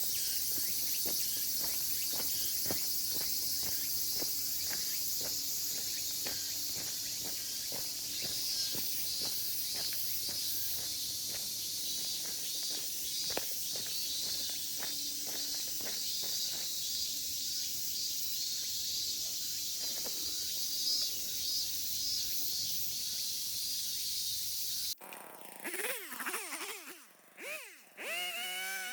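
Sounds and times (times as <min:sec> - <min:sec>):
insects chorus: 0:00.0 - 0:25.0.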